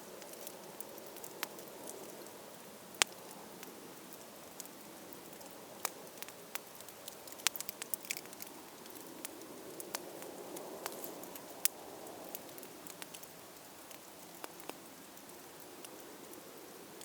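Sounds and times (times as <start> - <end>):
campfire crackling: 0.0 - 17.0
fire popping: 2.9 - 16.4.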